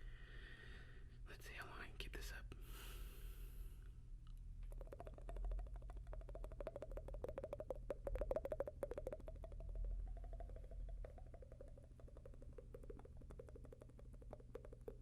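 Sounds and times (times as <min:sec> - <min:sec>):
wet mouth and tongue clicks: 0:04.2 - 0:15.0.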